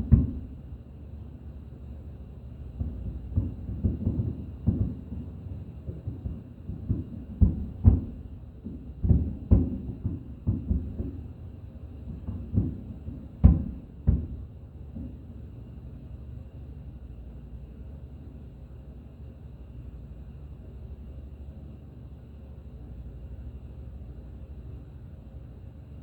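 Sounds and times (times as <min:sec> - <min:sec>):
fireworks booming: 0:00.0 - 0:15.9.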